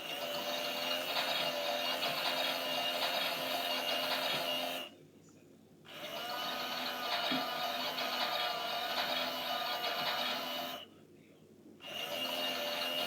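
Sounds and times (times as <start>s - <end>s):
washing machine motor whine: 0.0s - 4.9s, 5.9s - 10.8s, 11.8s - 13.0s.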